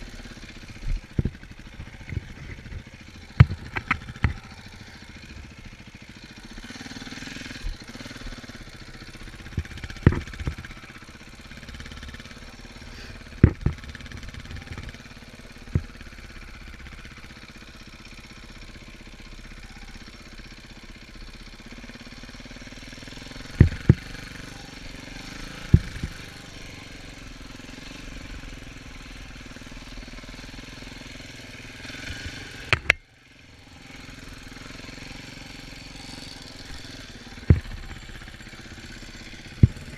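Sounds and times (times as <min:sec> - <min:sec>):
dirt bike engine running: 0:00.0 - 0:39.9
sharp knocks: 0:09.5 - 0:10.6, 0:13.4 - 0:13.9, 0:23.6 - 0:24.1.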